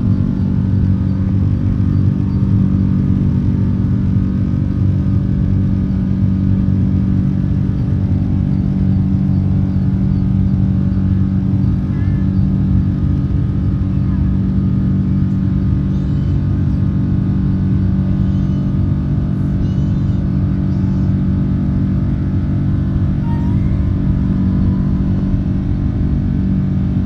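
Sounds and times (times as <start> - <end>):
airplane cabin engine drone: 0.0 - 27.0
low steady tones: 20.6 - 27.0.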